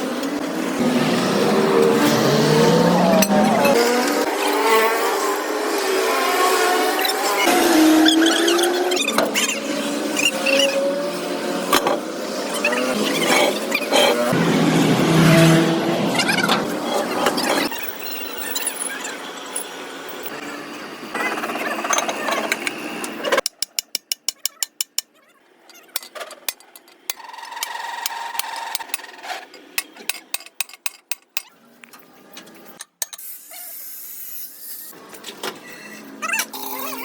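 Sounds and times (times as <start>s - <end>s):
tool scraping metal: 12.6s - 14.4s.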